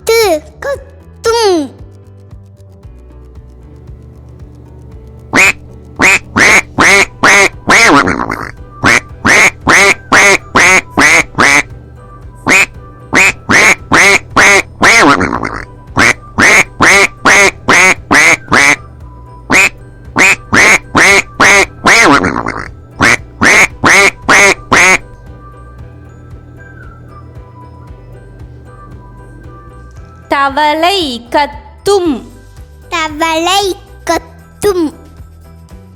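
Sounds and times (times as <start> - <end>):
quiet background music: 0.0 - 35.9
duck quacking: 5.4 - 11.7, 12.5 - 18.8, 19.5 - 25.0.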